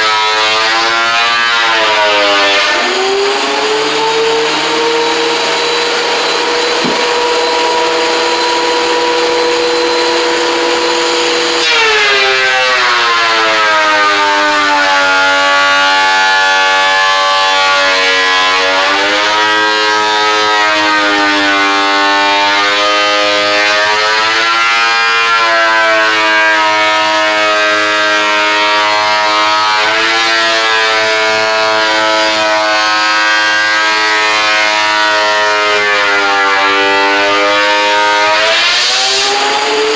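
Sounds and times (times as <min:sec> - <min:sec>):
power tool motor whining: 0:01.4 - 0:12.7.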